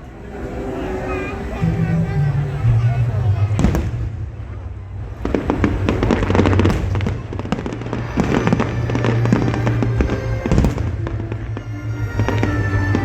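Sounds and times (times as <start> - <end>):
music playing: 0.0 - 13.0
fireworks bursting and crackling: 3.4 - 13.0.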